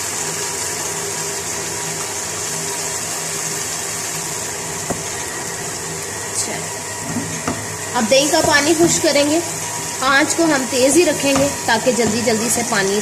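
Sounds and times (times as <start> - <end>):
sauce sizzling in a wok: 0.0 - 13.0
low steady hum: 4.0 - 13.0.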